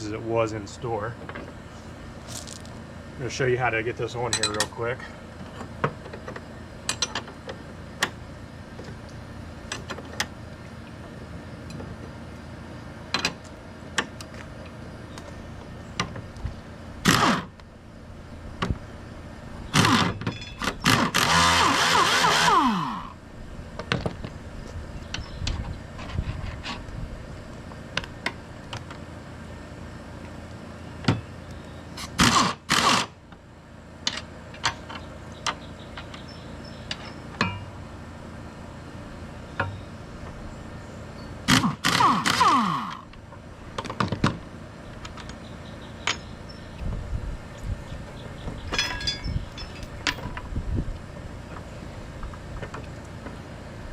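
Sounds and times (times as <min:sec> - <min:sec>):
metal tools clinking and scraping: 0:04.2 - 0:05.1, 0:20.2 - 0:20.8, 0:36.2 - 0:37.8, 0:48.6 - 0:50.4.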